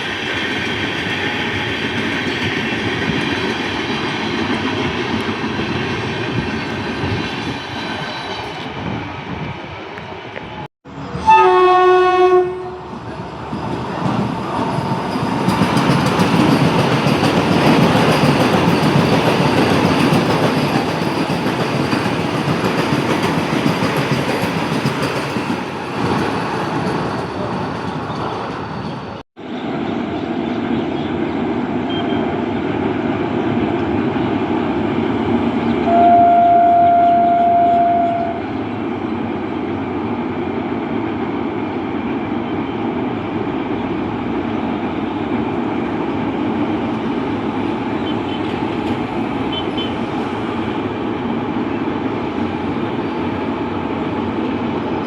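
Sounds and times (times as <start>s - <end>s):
train wheels rumbling and rattling: 0.0s - 11.3s, 12.8s - 29.2s
locomotive horn: 11.0s - 12.9s, 35.9s - 38.5s, 49.5s - 50.1s.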